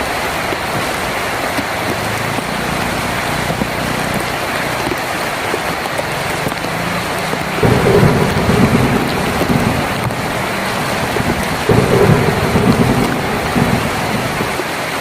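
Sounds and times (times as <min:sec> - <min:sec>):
heavy rain on a tin roof: 0:00.0 - 0:15.0
low rumbles: 0:07.4 - 0:14.8.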